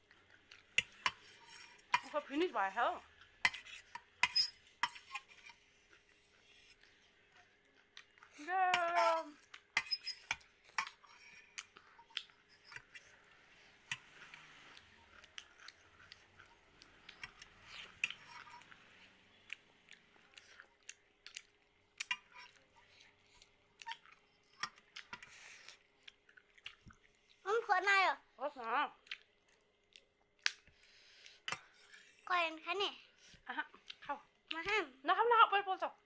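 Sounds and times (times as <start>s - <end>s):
people chewing: 0.0s - 2.2s, 4.8s - 27.4s, 29.0s - 32.3s, 33.0s - 34.7s.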